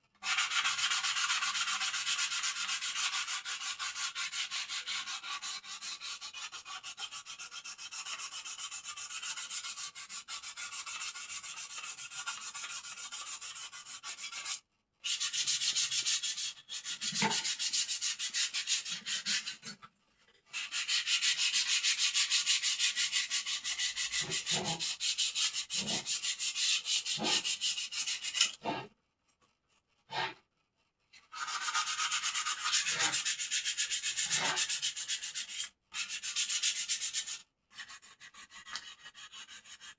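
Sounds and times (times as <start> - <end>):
sanding rasp: 0.2 - 19.7, 20.6 - 28.8, 31.4 - 39.9.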